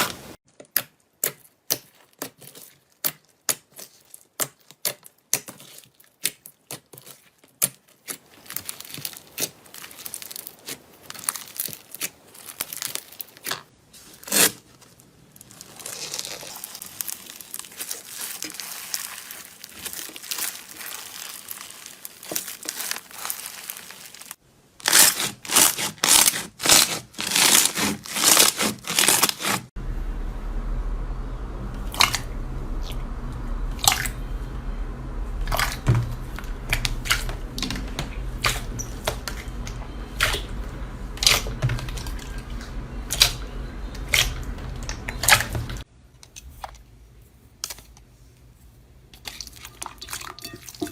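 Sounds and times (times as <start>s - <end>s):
crunchy material being crushed: 1.3s - 29.7s.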